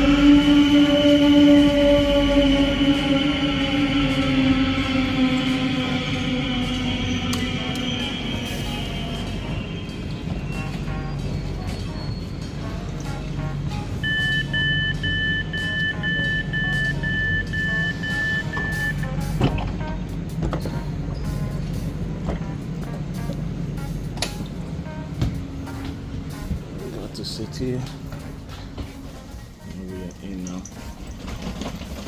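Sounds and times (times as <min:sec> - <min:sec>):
low rumble: 0:00.0 - 0:29.0
electric train whine: 0:00.0 - 0:32.0
short electronic beeps: 0:14.0 - 0:19.0.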